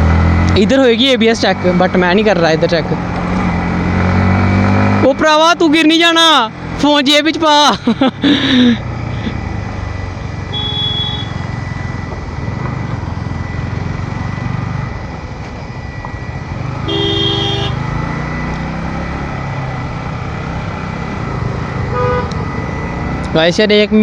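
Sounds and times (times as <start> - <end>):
motorcycle engine running: 0.0 - 24.0
vehicle horns honking: 10.4 - 11.6, 16.8 - 17.8, 21.8 - 22.6.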